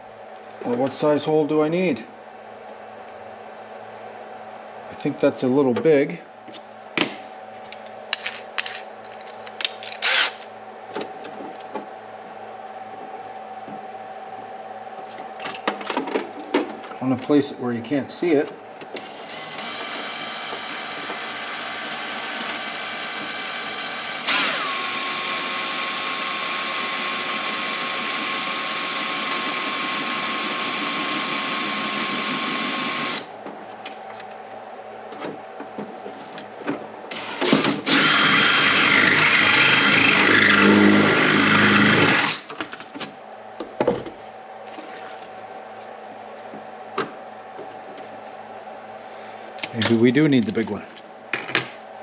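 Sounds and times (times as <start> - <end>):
power drill drilling: 10.0 - 10.4, 19.0 - 33.3, 37.1 - 42.5.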